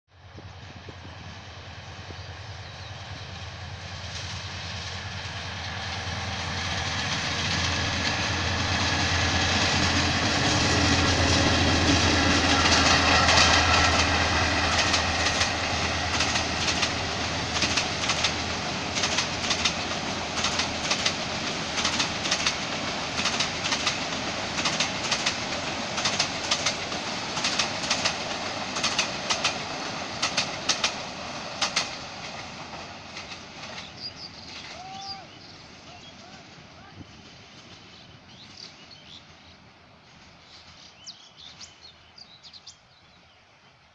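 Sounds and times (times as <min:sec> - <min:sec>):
diesel locomotive engine hum: 0:00.1 - 0:43.9
train wheels clickety-clack: 0:03.2 - 0:35.2.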